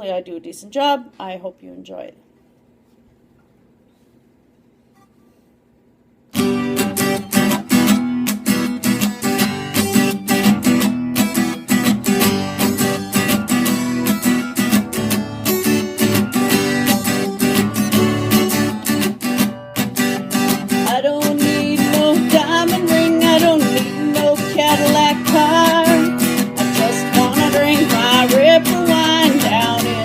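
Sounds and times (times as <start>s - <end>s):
acoustic guitar strumming chords: 6.3s - 30.0s.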